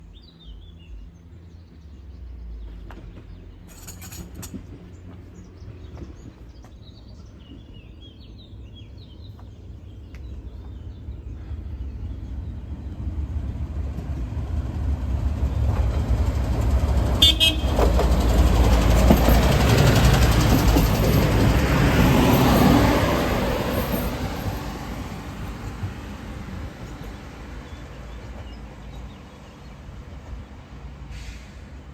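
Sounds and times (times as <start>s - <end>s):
train rumbling past: 9.6s - 31.9s
train horn blast: 17.2s - 18.1s.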